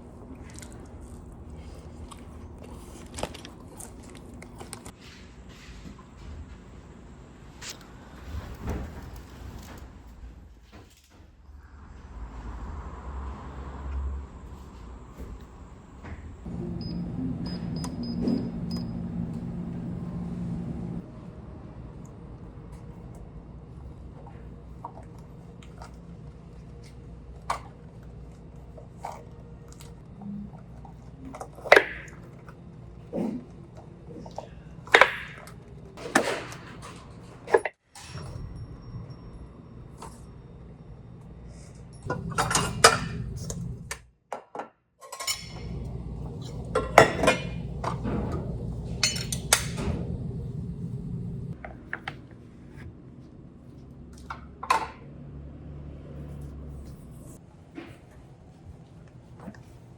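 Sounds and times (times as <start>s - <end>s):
dishes and utensils clinking: 41.6s - 43.7s, 45.0s - 50.2s.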